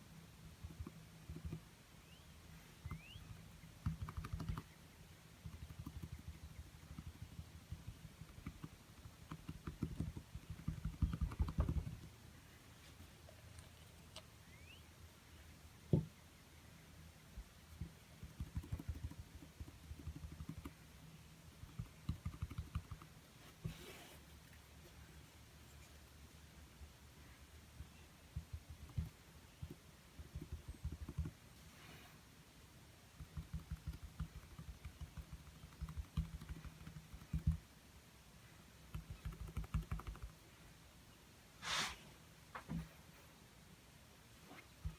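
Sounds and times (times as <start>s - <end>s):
paintbrush tapping canvas: 3.8s - 4.7s, 5.4s - 12.1s, 17.8s - 20.8s, 33.2s - 37.6s
brief rustle: 41.6s - 43.3s.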